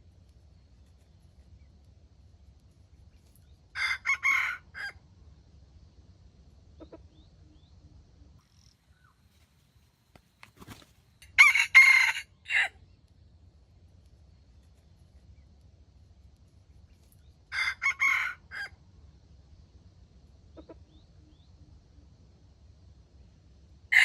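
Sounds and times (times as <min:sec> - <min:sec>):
rooster crowing: 0:03.8 - 0:05.0, 0:11.2 - 0:12.8, 0:17.5 - 0:18.8.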